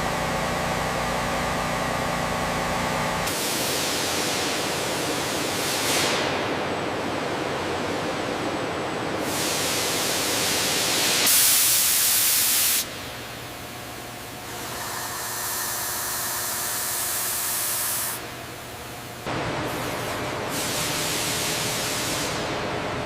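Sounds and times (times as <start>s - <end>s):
loud steady hiss: 9.2s - 19.2s.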